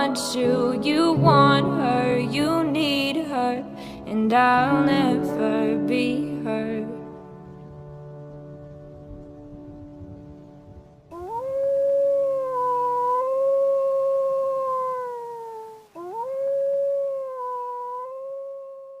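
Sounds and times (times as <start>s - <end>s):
wolf howling: 11.1s - 19.0s.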